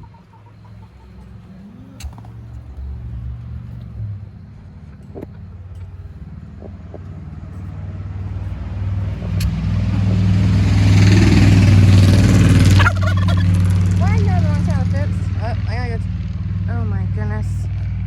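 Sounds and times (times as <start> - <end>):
motor vehicle engine running: 0.0 - 18.0.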